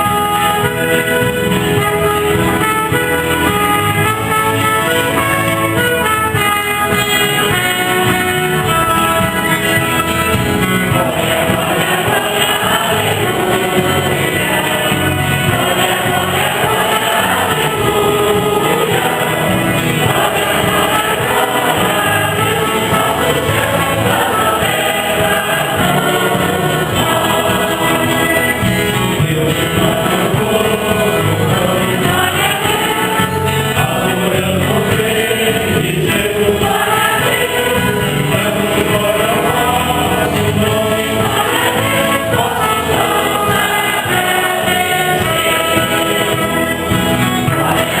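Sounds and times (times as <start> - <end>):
choir singing a hymn: 0.0 - 48.0
instrumental accompaniment: 0.0 - 48.0
steady beat: 6.3 - 37.4.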